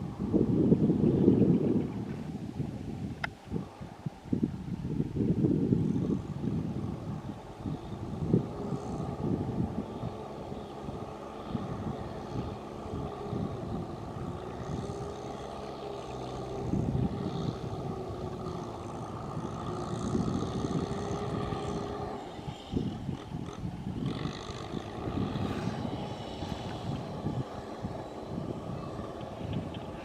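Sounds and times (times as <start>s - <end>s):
tractor engine under load: 6.7s - 30.0s.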